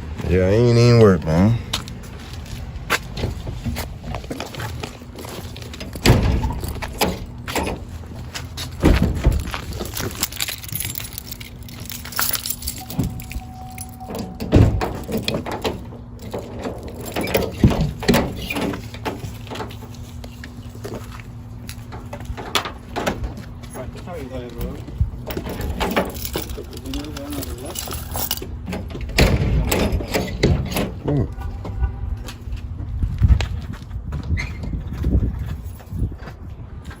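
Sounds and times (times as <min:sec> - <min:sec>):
low steady hum: 0:09.0 - 0:22.1.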